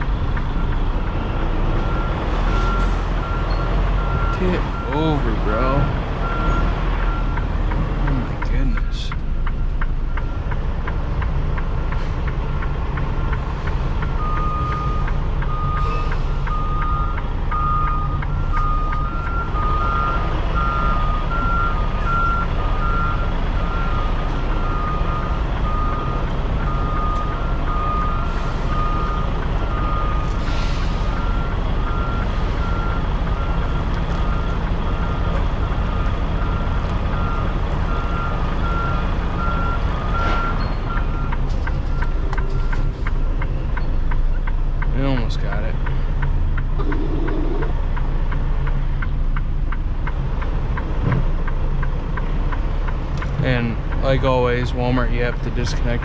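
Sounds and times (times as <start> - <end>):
diesel truck engine rumbling: 0.0 - 56.0
backup alarm beeping: 14.1 - 43.9, 46.8 - 47.8.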